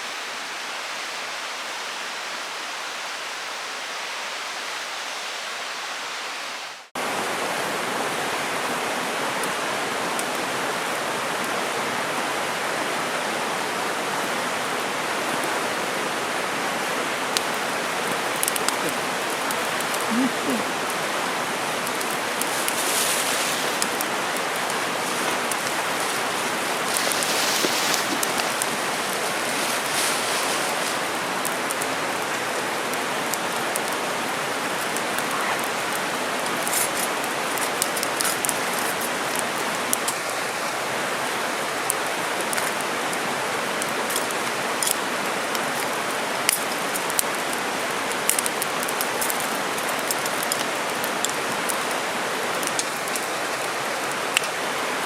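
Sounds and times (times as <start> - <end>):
mountain stream rushing: 0.0 - 55.0.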